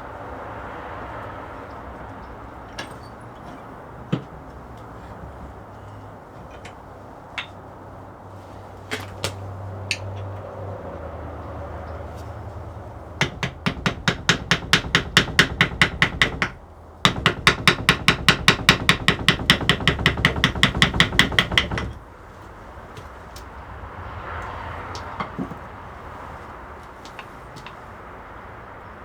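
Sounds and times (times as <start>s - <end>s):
rapid even tapping: 13.2s - 22.0s.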